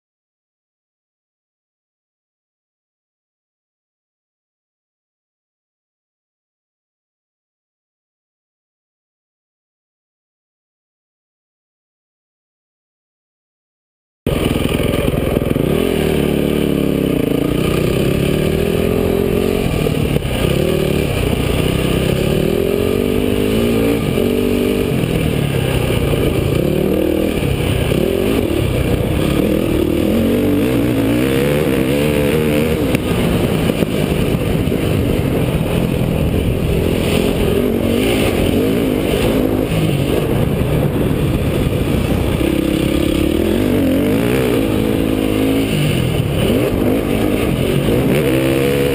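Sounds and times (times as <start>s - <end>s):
dirt bike engine revving: 14.3s - 48.9s.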